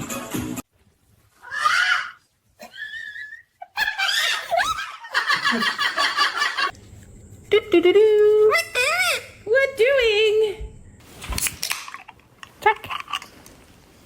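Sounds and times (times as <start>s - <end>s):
music: 0.0s - 0.6s.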